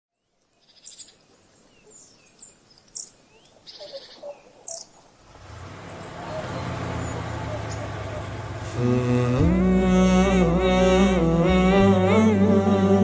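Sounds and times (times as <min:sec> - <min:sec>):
songbirds chirping and trilling: 0:00.1 - 0:13.0
low steady hum: 0:06.6 - 0:13.0.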